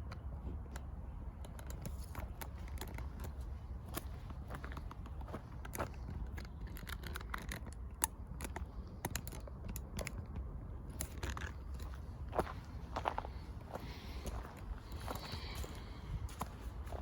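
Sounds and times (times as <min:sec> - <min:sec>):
footsteps crunching on forest path: 0:11.7 - 0:17.0.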